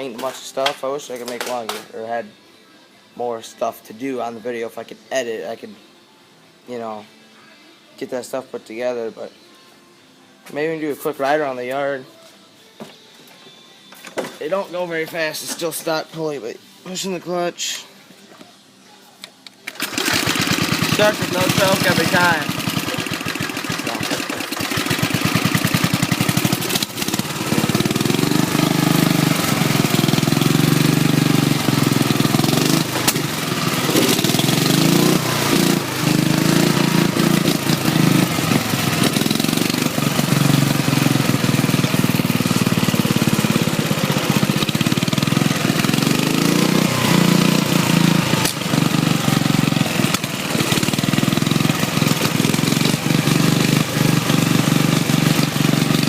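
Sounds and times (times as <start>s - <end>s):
lawn mower engine revving: 19.7s - 56.0s.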